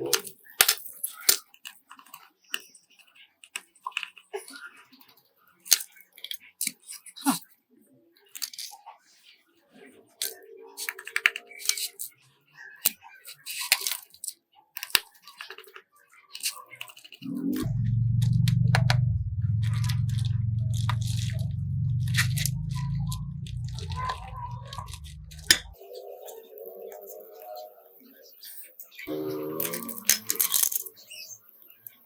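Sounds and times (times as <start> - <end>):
low motor hum: 17.2 - 25.8
small hard objects clicking: 29.5 - 32.0.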